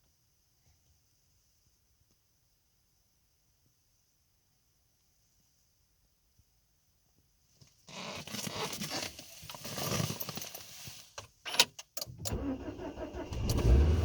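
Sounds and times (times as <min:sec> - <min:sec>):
rustling: 0:07.5 - 0:11.4
engine starter cranking: 0:11.6 - 0:14.0
car engine starting: 0:12.1 - 0:14.0.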